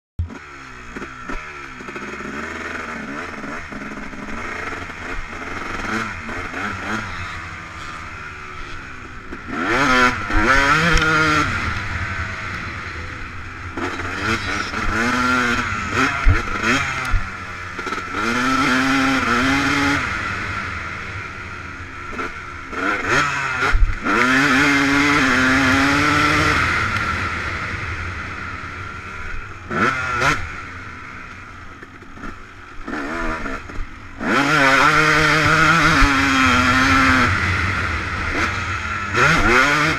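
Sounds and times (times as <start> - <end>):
motocross bike engine revving: 0.2 - 39.9.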